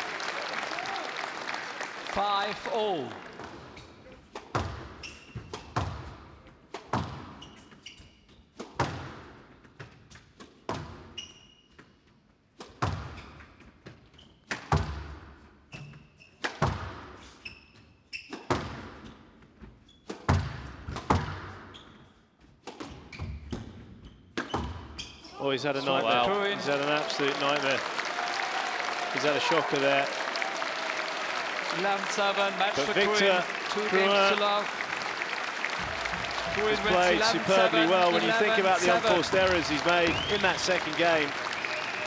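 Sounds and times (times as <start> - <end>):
shoes squeaking on court floor: 4.9 - 5.8, 7.2 - 8.5, 11.0 - 12.0.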